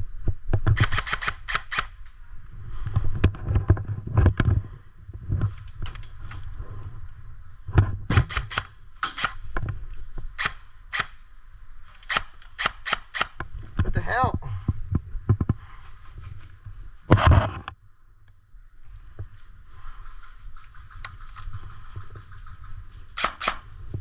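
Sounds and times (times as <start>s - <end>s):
airsoft gun shots: 0.8s - 1.9s, 8.1s - 9.4s, 10.4s - 11.2s, 12.1s - 13.4s, 23.2s - 23.7s.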